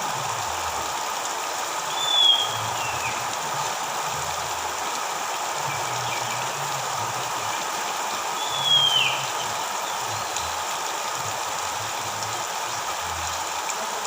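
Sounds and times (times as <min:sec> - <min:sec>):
steady hiss: 0:00.0 - 0:14.0
bird whistle: 0:01.9 - 0:02.6, 0:08.4 - 0:09.4.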